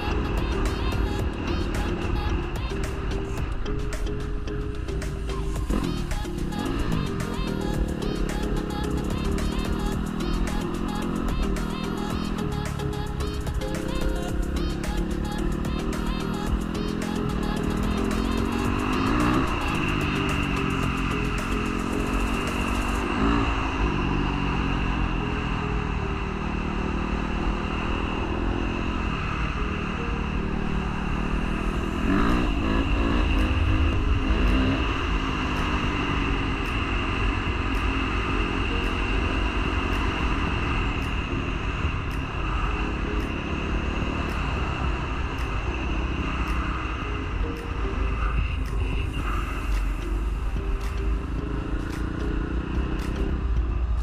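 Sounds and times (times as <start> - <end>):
dirt bike engine revving: 5.4 - 25.2, 30.0 - 42.3.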